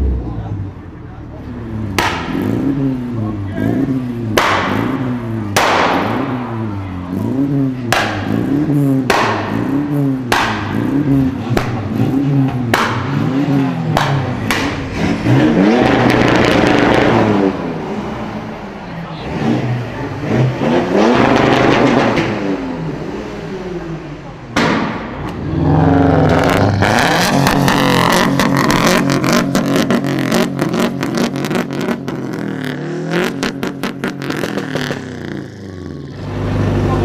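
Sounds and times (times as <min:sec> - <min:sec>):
sports car engine revving: 0:00.0 - 0:37.0
exhaust cracks: 0:07.8 - 0:17.9, 0:24.4 - 0:37.0.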